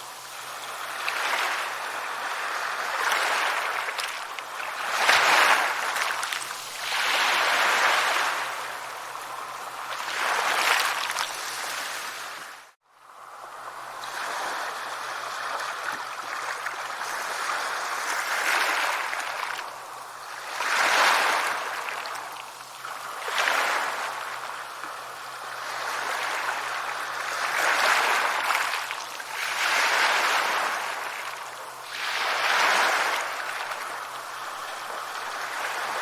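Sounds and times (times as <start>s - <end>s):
sea waves washing onto shore: 0.0s - 36.0s.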